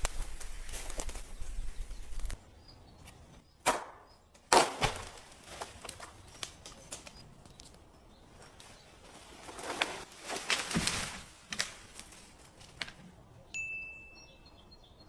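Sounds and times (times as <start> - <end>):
rustling and scraping handling noise: 5.4 - 13.2.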